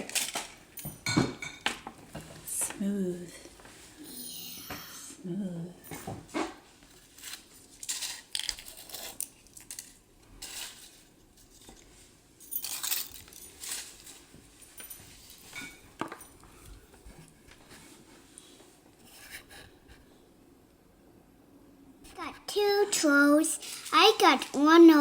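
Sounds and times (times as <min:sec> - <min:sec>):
plastic capsules clicking and rustling: 0:07.2 - 0:10.8.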